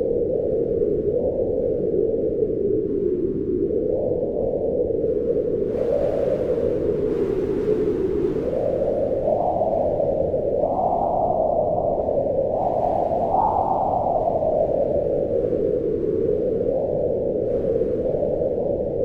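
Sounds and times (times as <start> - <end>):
wind blowing: 5.0 - 19.0.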